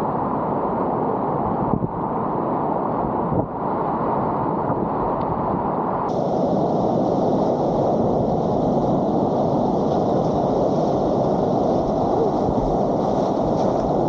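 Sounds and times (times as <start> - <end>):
whitewater river rushing: 6.1 - 14.0.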